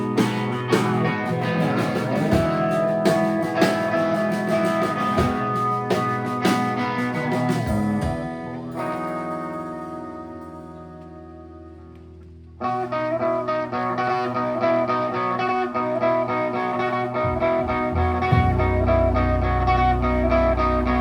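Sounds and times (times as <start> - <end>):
drum kit: 0.0 - 10.6, 17.2 - 21.0
electric guitar: 0.0 - 21.0.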